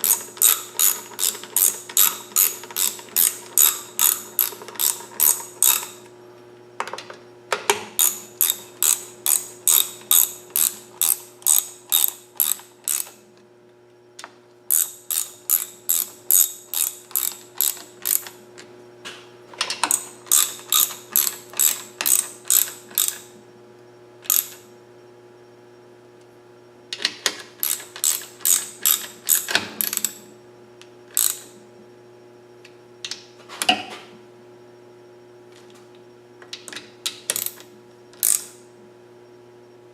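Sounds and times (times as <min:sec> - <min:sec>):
ratchet wrench clicking: 0:00.0 - 0:06.0, 0:08.0 - 0:13.2, 0:14.7 - 0:18.4, 0:19.8 - 0:23.3, 0:24.3 - 0:24.6, 0:27.6 - 0:30.2, 0:31.2 - 0:31.5, 0:37.3 - 0:37.6, 0:38.2 - 0:38.5.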